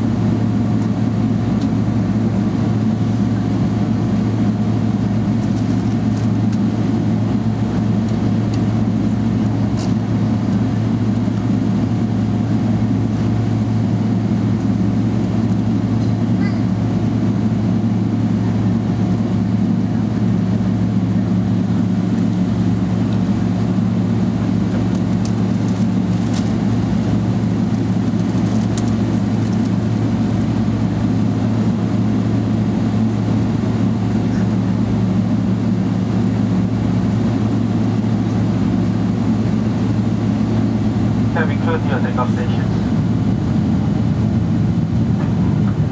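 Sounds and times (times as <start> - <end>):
airplane cabin drone: 0.0 - 45.9.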